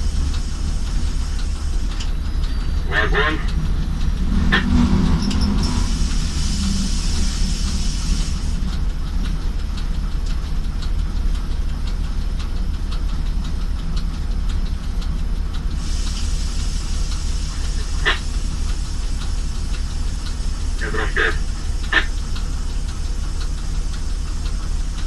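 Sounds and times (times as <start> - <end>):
faint regular ticking: 0.0 - 25.0
locomotive engine rumbling: 0.0 - 25.0
air hissing: 4.4 - 8.7, 15.7 - 25.0.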